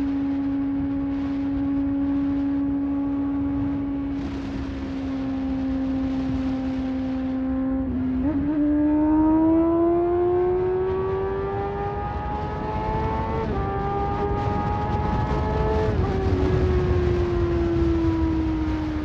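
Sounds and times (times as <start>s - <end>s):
motorcycle engine running: 0.0s - 9.9s
wind rush: 0.0s - 19.0s.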